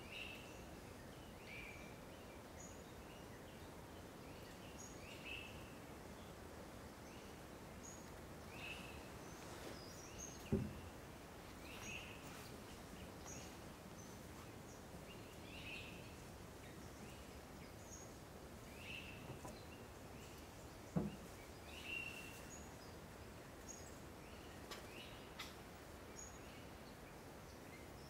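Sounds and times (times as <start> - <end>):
brief knock: 10.4 - 10.8.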